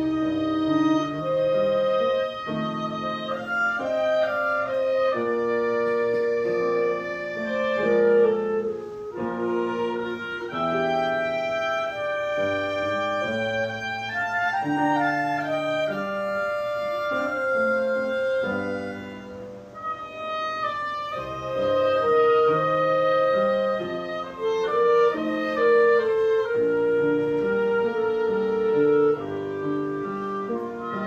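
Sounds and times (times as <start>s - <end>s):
small ensemble playing a slow hymn: 0.0s - 31.0s.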